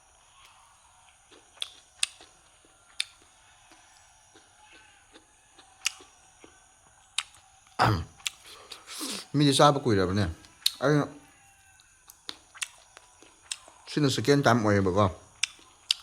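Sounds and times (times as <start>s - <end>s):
mouth clicks and smacks: 1.3s - 2.3s, 7.2s - 9.2s, 10.4s - 10.8s, 12.1s - 13.7s, 15.4s - 16.0s.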